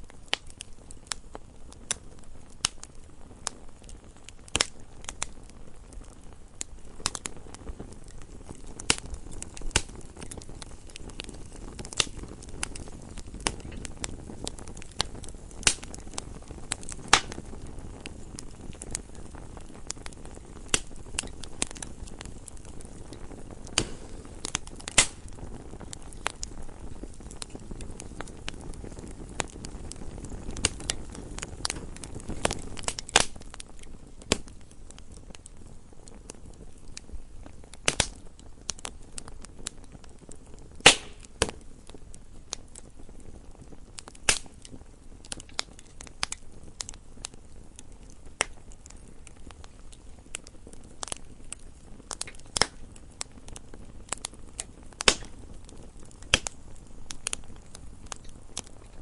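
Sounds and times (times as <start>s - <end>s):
burning logs crackling and popping: 0.0s - 59.0s
wood fire burning: 0.0s - 59.0s.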